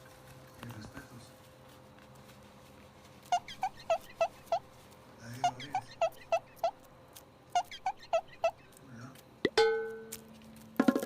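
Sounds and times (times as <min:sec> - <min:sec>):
cat chirping: 0:03.3 - 0:04.6, 0:05.4 - 0:06.8, 0:07.5 - 0:08.7.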